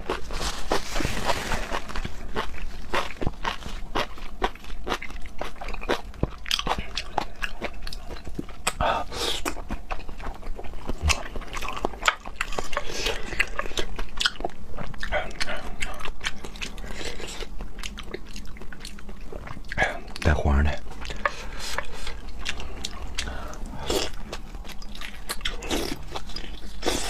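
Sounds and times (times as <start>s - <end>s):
person chewing wet mouth sounds: 1.8s - 27.0s.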